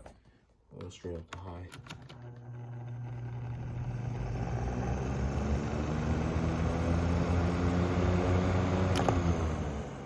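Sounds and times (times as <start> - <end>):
box fan motor hum: 2.2 - 10.0.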